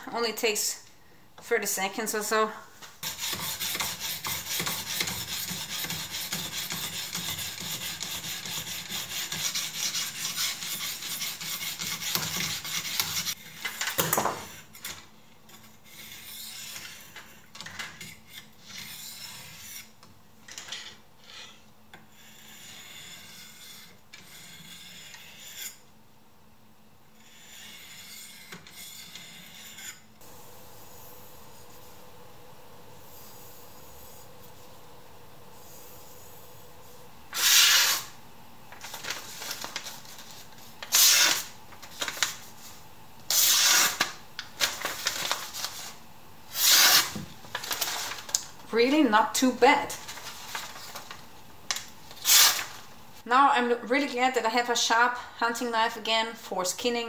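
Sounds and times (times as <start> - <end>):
knife rasping on sharpening stone: 22.2 - 25.8, 27.2 - 30.0.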